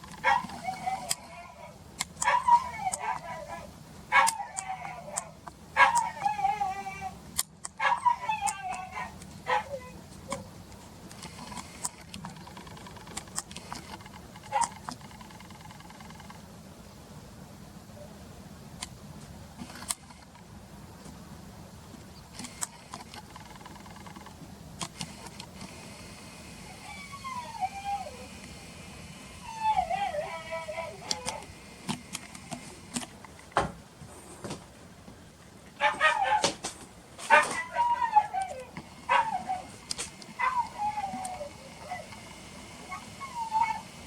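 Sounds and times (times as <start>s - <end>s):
dog whining: 0.2s - 7.2s, 7.8s - 10.5s, 26.6s - 28.4s, 29.4s - 31.5s, 35.8s - 36.5s, 37.3s - 39.8s, 40.4s - 44.0s.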